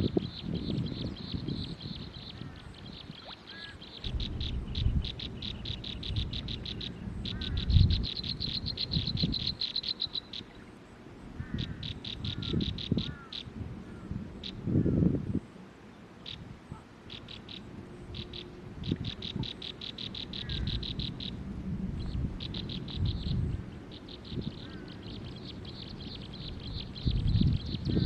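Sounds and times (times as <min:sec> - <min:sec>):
small bird chirping rapidly: 0:00.0 - 0:10.6, 0:17.1 - 0:21.4, 0:22.0 - 0:28.0
low rumbling noise: 0:03.9 - 0:09.6, 0:16.5 - 0:28.0.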